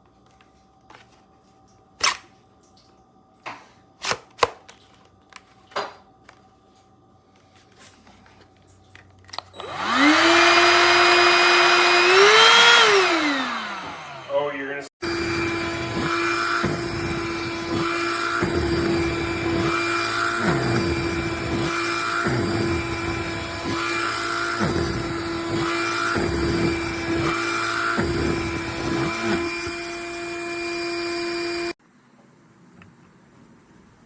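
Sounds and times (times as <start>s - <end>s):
handheld vacuum running: 9.3s - 31.8s.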